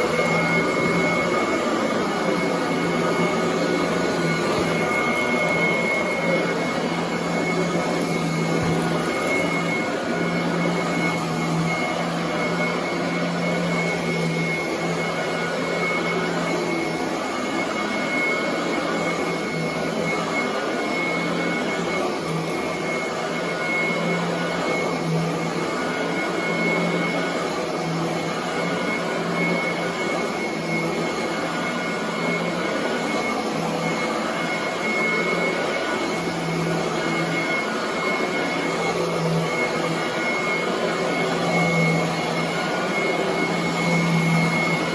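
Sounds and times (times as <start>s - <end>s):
vacuum cleaner running: 0.0s - 44.9s.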